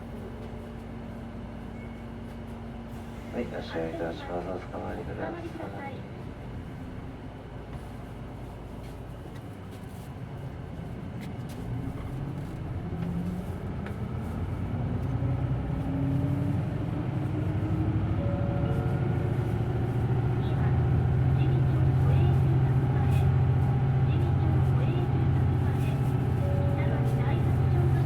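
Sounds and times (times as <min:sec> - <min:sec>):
bus accelerating: 0:10.7 - 0:28.0.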